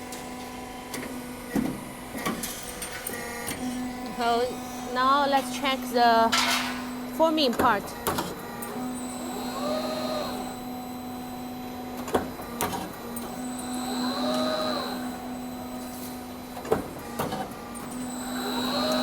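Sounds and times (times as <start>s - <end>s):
machine humming: 3.1s - 19.0s
motor whine: 6.8s - 19.0s.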